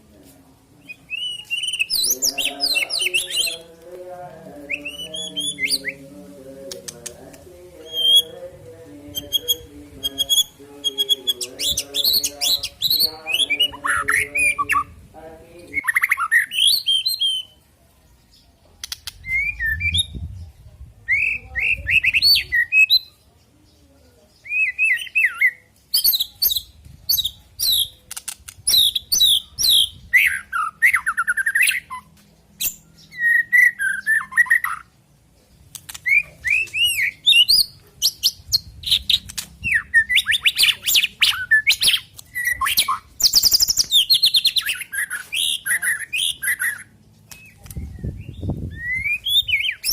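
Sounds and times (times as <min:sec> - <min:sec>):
bird singing whistled phrases: 0:00.9 - 0:03.6, 0:19.2 - 0:20.2, 0:21.1 - 0:23.1, 0:28.7 - 0:34.8, 0:36.0 - 0:49.9.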